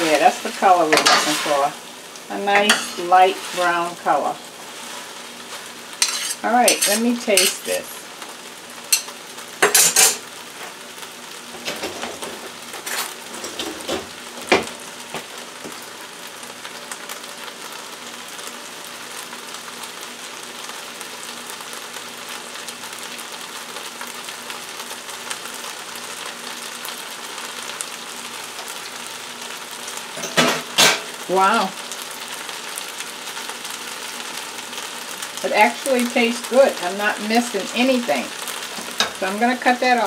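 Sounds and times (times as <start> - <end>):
fried rice sizzling in skillet: 0.0 - 40.0
metal spoons clinking: 6.0 - 7.7.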